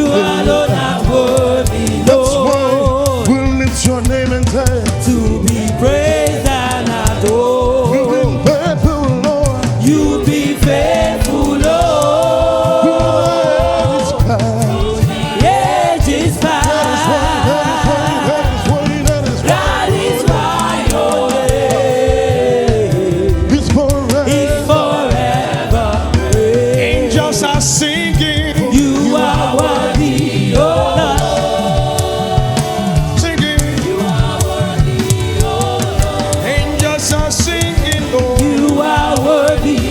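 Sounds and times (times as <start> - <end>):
gospel choir singing: 0.0 - 39.9
live band: 0.0 - 39.9
steady drum beat: 0.0 - 39.9.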